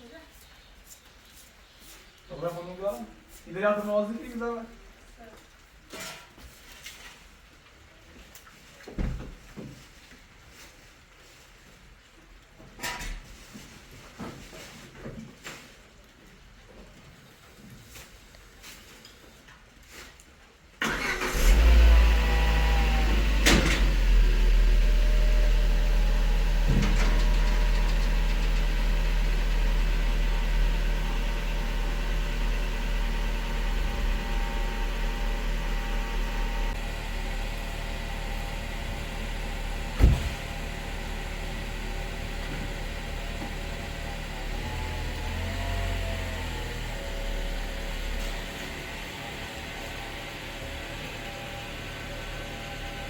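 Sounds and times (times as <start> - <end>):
motor humming: 21.5 - 53.0
sharp knock: 40.0 - 40.5.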